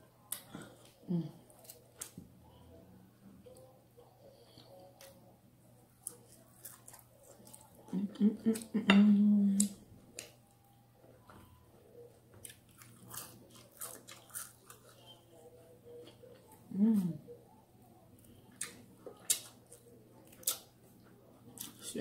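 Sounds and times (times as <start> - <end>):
chewing crispy food: 0.2 - 2.2, 3.4 - 8.9, 12.2 - 22.0
person humming mmm: 16.7 - 17.3.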